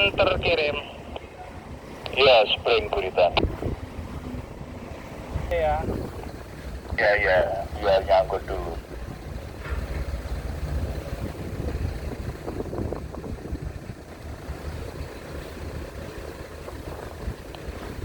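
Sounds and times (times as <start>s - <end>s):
ship engines low rumble: 0.0s - 18.0s
wind noise: 3.2s - 7.1s, 8.9s - 18.0s.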